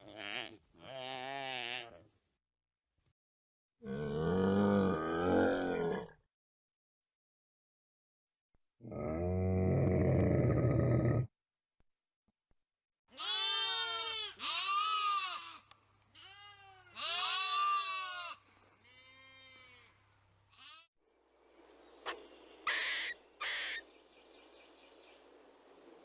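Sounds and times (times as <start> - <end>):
goat bleating: 0.0 - 2.1, 13.1 - 20.9.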